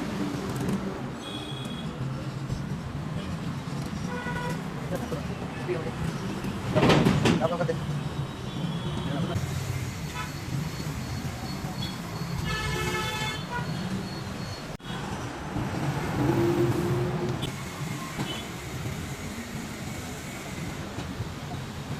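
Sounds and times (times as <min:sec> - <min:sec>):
road traffic engines: 0:00.0 - 0:21.9
vehicle horn honking: 0:11.8 - 0:13.8.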